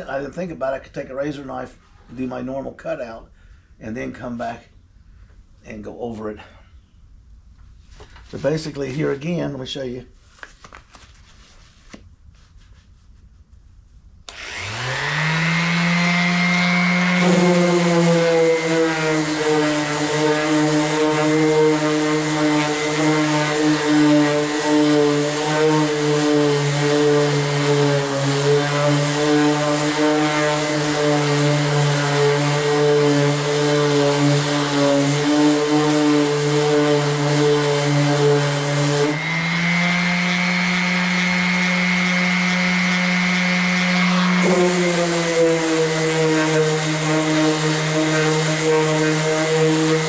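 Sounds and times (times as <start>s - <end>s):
power sander sanding: 14.3s - 50.0s.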